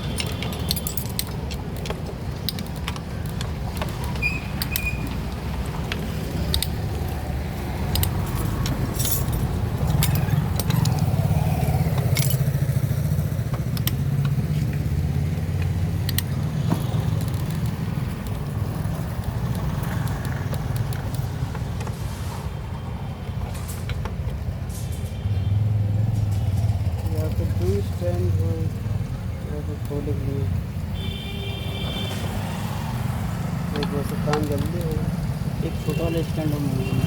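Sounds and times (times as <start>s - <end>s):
metal tools clinking: 0.0s - 12.6s.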